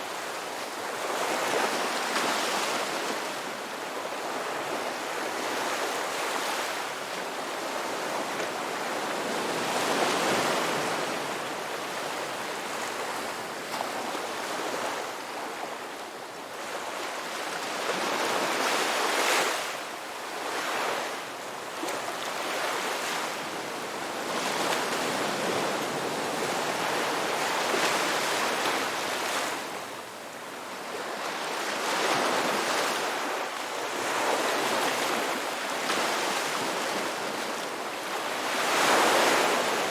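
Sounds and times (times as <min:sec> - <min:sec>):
ocean surf breaking on beach: 0:20.6 - 0:39.9.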